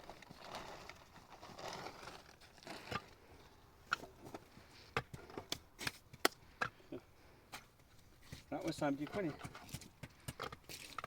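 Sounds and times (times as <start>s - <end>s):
soft rustling and crinkling: 0.0s - 6.2s.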